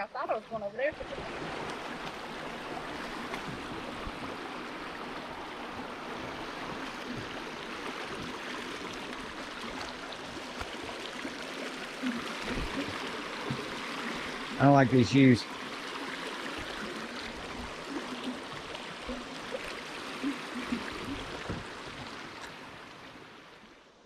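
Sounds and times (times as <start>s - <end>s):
river water rushing over rocks: 0.8s - 23.8s.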